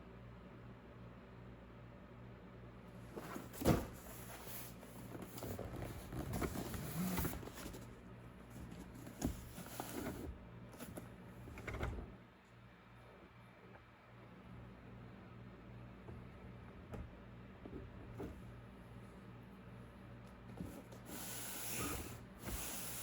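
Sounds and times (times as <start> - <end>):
low steady hum: 0.0 - 23.0
packaging rustling and scraping: 3.1 - 11.0
box thump: 3.2 - 4.2.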